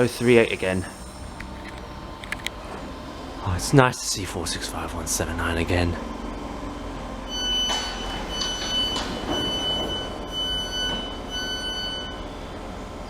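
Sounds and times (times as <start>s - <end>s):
station background hum: 0.0s - 13.0s
train door warning beeps: 7.2s - 12.7s.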